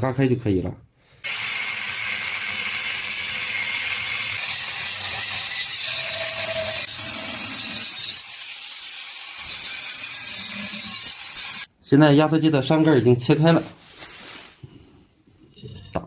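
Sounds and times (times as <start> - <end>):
power tool cutting metal: 1.2 - 11.7.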